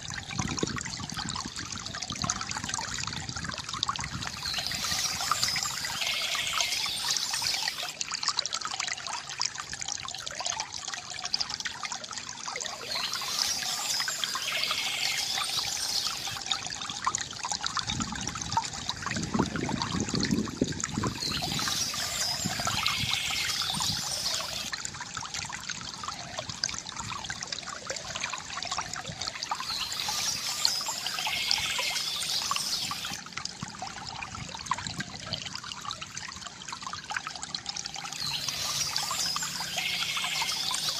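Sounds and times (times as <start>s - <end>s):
fountain water trickling: 0.0s - 40.9s
birds chirping: 4.3s - 7.9s, 12.8s - 16.4s, 21.1s - 24.7s, 29.6s - 33.2s, 38.2s - 40.9s.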